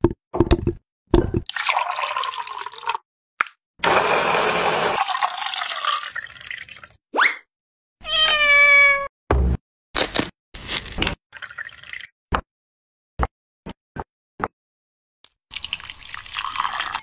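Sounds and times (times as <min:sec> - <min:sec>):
cat meowing: 0:08.0 - 0:09.1.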